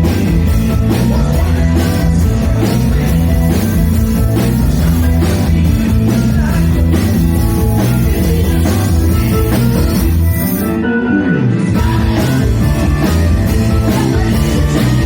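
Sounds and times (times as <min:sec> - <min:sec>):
drum kit: 0:00.0 - 0:10.8, 0:11.7 - 0:15.0
bass: 0:00.0 - 0:15.0
electric guitar: 0:00.0 - 0:15.0.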